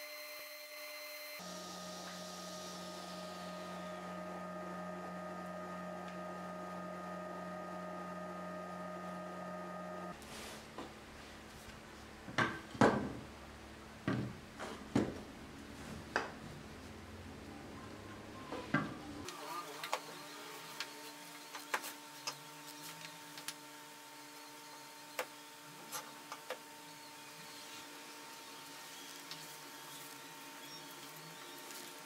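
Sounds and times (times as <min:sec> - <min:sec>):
machine hum: 0:01.4 - 0:10.2.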